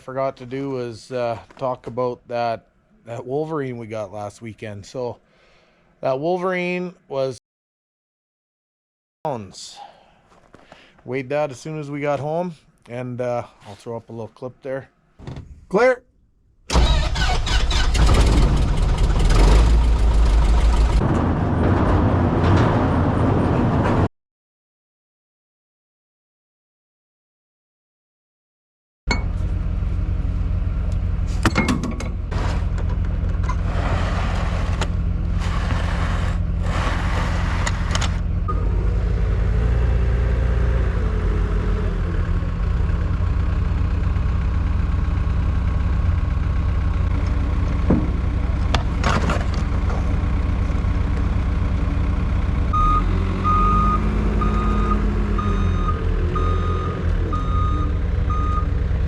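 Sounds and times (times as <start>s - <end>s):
skid steer diesel engine: 16.7s - 24.0s, 29.1s - 59.0s
reversing alarm beeping: 52.7s - 58.7s.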